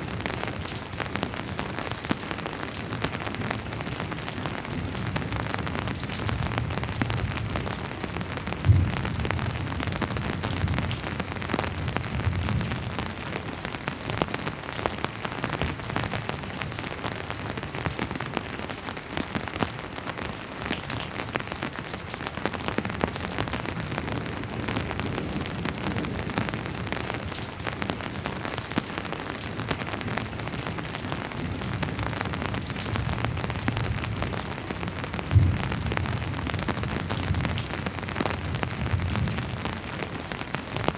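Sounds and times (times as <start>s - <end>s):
steady rain patter: 0.0s - 40.9s.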